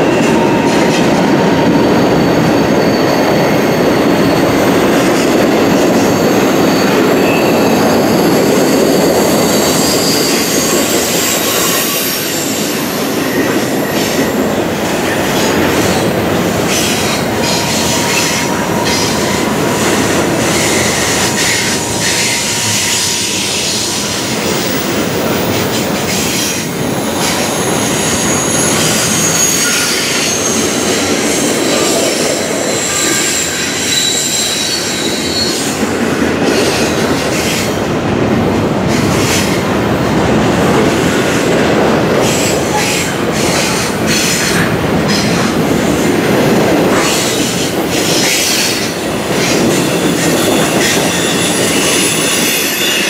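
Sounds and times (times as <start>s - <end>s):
steel wheels rumbling on rail: 0.0s - 53.0s
thin wheel squeal: 6.1s - 12.6s, 28.1s - 35.7s.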